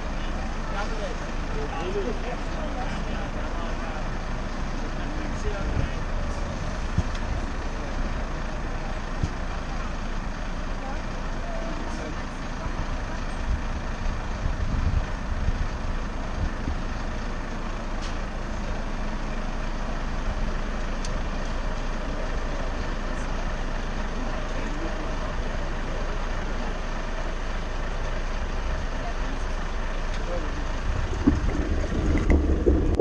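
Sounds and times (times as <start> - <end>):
city street traffic: 0.0 - 33.0
wind rumble on microphone: 14.3 - 15.8, 30.8 - 33.0.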